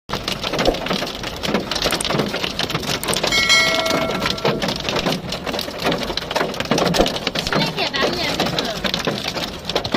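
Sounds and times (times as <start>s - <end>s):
heavy rain falling: 0.1s - 9.9s
steady high tone: 3.0s - 5.0s.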